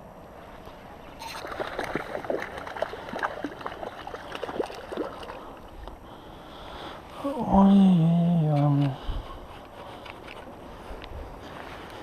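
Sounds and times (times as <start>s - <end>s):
water splashing and gurgling: 1.1s - 5.8s.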